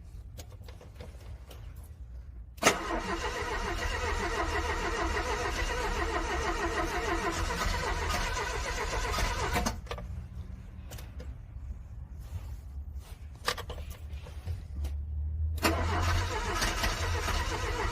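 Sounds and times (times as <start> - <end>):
car starter cranking engine: 2.6 - 9.9, 15.6 - 17.9.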